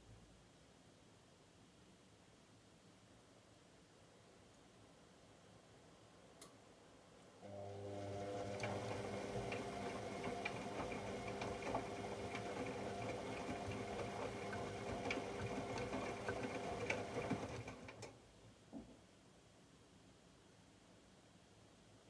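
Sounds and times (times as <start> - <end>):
washing machine drum humming: 7.5 - 18.1.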